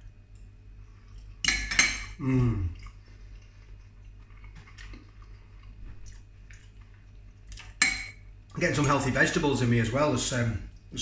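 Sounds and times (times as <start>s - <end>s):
man chewing food: 0.0s - 1.4s, 2.4s - 8.6s
man humming mmm: 2.2s - 2.9s.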